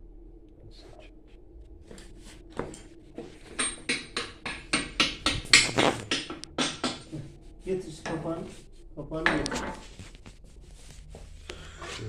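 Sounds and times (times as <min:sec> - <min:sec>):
hammer tapping on metal: 0:02.6 - 0:07.3.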